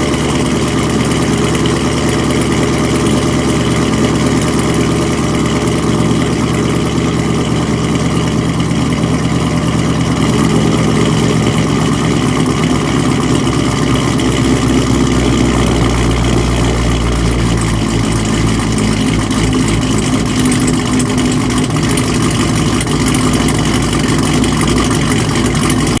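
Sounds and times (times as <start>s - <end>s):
car engine idling loud: 0.0s - 26.0s
engine popping: 0.0s - 26.0s.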